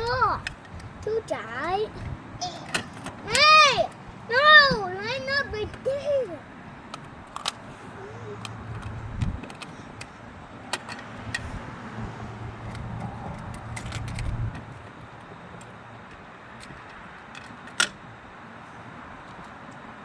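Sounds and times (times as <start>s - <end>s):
toy cars clicking on plastic: 1.9s - 6.1s, 6.9s - 7.6s.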